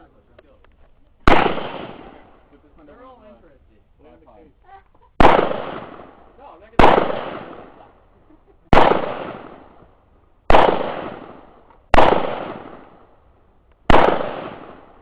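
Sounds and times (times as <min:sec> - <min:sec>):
rifle shots echoing: 0:01.2 - 0:02.9, 0:05.2 - 0:15.0.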